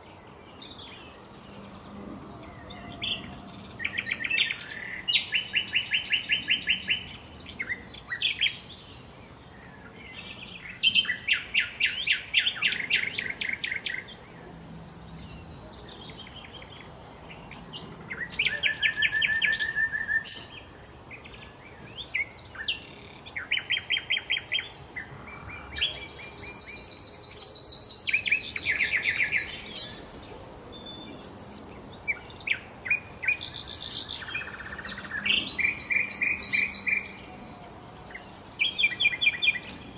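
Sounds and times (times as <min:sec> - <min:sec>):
songbirds trilling: 0:00.0 - 0:39.9.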